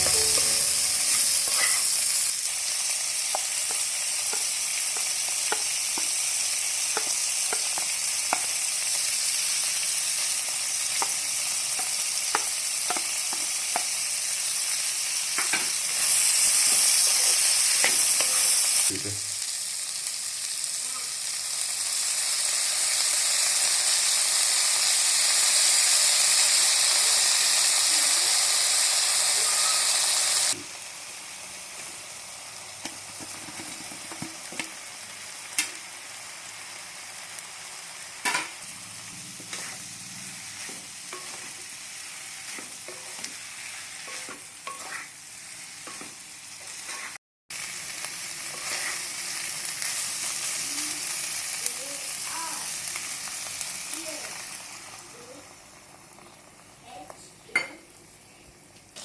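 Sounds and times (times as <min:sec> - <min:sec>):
utensil scraping in a pan: 0:00.0 - 0:02.2, 0:39.3 - 0:47.2, 0:48.4 - 0:49.3
food sizzling in a hot pan: 0:00.0 - 0:59.0.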